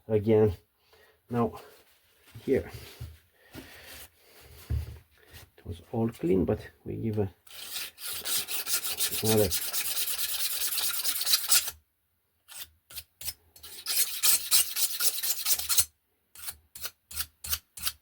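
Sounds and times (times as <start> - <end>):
hand scrubbing a metal surface: 7.5 - 11.6.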